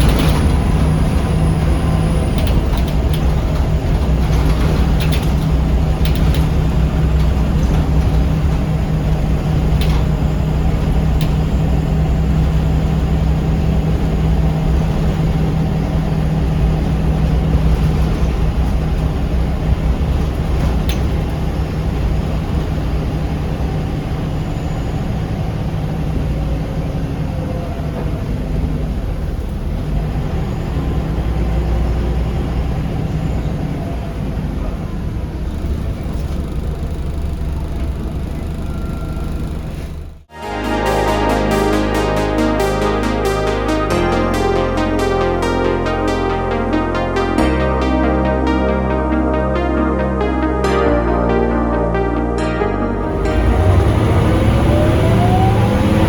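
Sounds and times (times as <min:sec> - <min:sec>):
road noise: 0:00.0 - 0:40.8, 0:52.9 - 0:56.0
bus diesel engine droning: 0:00.0 - 0:56.0.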